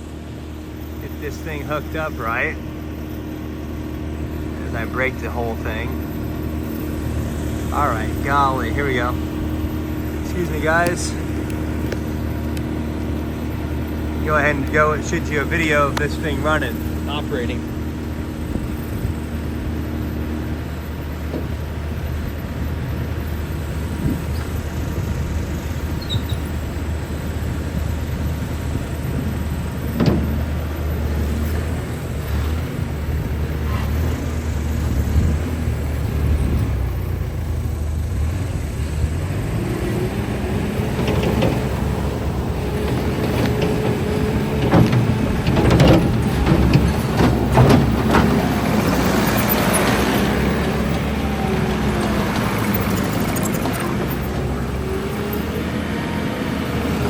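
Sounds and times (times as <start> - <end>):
diesel engine running: 0.0 - 57.0
metallic clanks and rattles: 29.8 - 30.7, 40.9 - 50.6.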